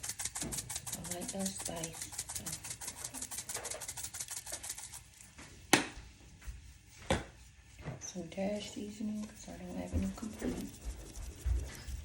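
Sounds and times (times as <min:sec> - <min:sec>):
spice shaker rattling: 0:00.0 - 0:05.2.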